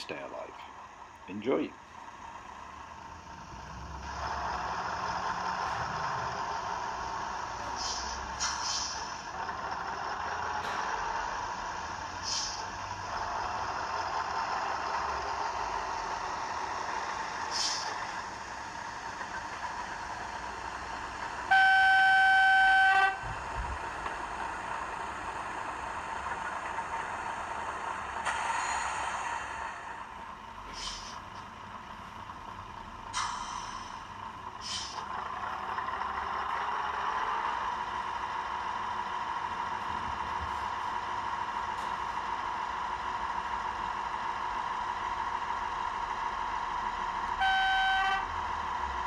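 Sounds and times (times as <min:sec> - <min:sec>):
diesel engine sound from speaker: 0:00.0 - 0:49.0
short hisses: 0:07.7 - 0:09.1, 0:12.2 - 0:12.6, 0:17.5 - 0:18.0, 0:28.3 - 0:30.0, 0:30.7 - 0:31.2, 0:33.1 - 0:34.0, 0:34.6 - 0:35.0
horn blast: 0:21.5 - 0:23.2, 0:47.4 - 0:48.3.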